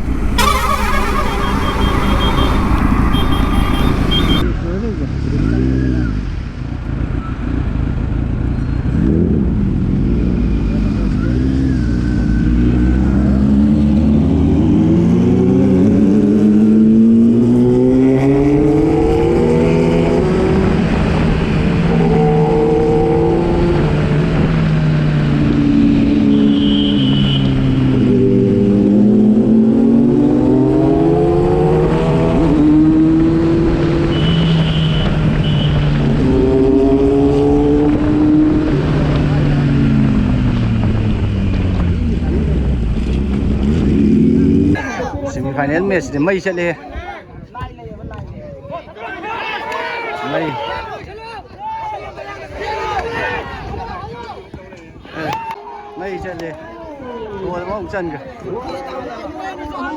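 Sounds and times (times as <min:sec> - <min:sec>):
motorcycle engine accelerating: 0:00.0 - 0:06.3, 0:07.6 - 0:44.8.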